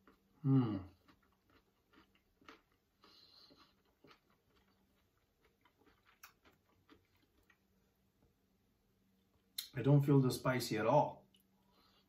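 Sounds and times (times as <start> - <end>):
chewing raw carrot: 0.0 - 7.7.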